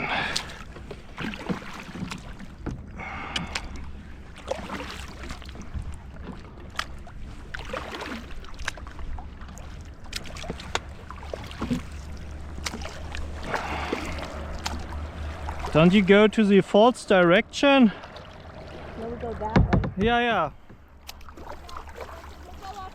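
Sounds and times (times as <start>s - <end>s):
paddle strokes swishing in water: 0.0s - 22.9s
steady low rumble: 10.8s - 21.1s.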